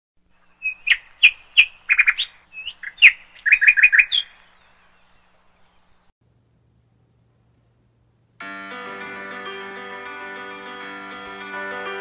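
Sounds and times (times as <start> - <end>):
bird chirping: 0.3 - 6.1.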